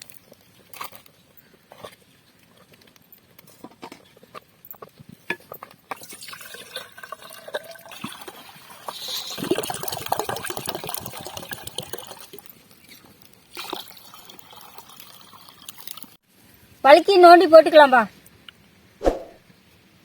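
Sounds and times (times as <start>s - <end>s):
coconut water pouring into a vessel: 6.0s - 12.5s, 13.5s - 16.2s.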